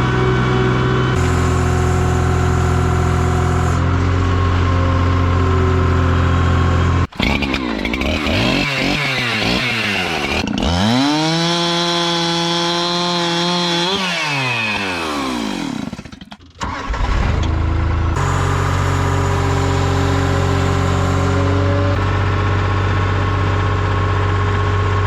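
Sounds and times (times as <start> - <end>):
deep engine running steadily: 0.0 - 8.6, 17.2 - 25.0
engine revving: 0.0 - 22.2.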